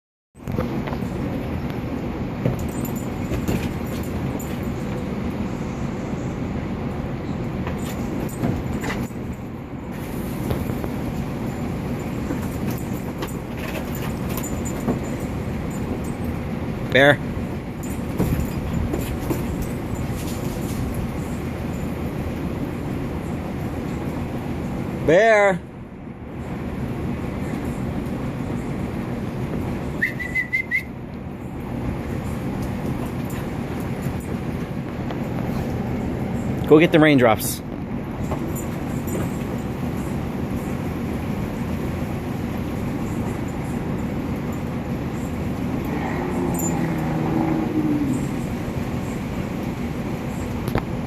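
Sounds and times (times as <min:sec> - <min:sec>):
short high wavering whistle: 0:30.0 - 0:31.0.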